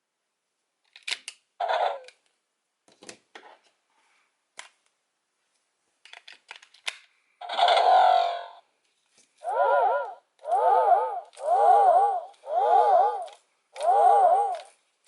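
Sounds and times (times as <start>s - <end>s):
plastic toy clicks and snaps: 0.9s - 1.4s, 6.0s - 7.9s, 13.2s - 14.8s.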